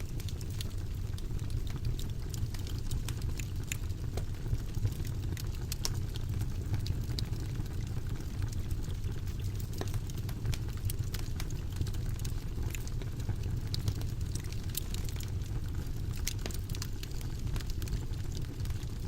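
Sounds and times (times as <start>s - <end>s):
fireplace fire crackling: 0.0s - 19.0s
low roar of flames: 0.0s - 19.0s.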